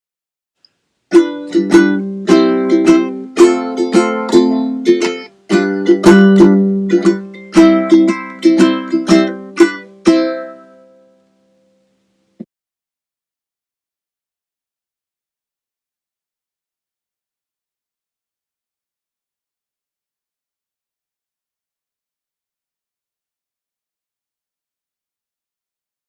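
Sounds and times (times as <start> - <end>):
ukulele plucked and strummed: 1.1 - 11.8.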